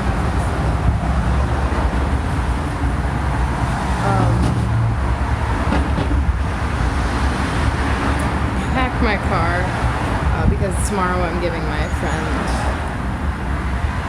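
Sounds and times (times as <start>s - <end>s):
engine and road rumble in vehicle: 0.0s - 14.0s.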